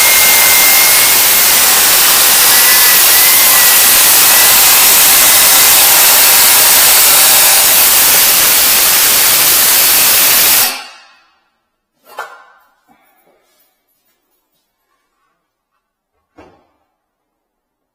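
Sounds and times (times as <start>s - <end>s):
power tool motor hiss: 0.0s - 10.9s.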